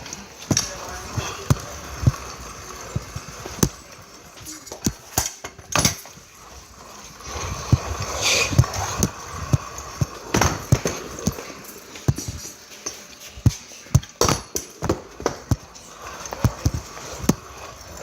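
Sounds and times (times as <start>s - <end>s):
kick scooter clacks and knocks: 0.0s - 6.2s, 7.2s - 12.5s, 13.4s - 18.0s
scooter rolling: 0.0s - 18.0s
scooter scraping: 0.0s - 18.0s.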